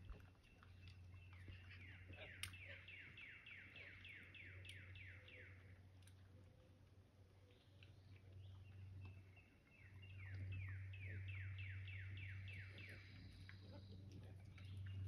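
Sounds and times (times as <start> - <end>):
low steady hum: 0.0 - 15.0
songbird whistling: 1.4 - 5.6.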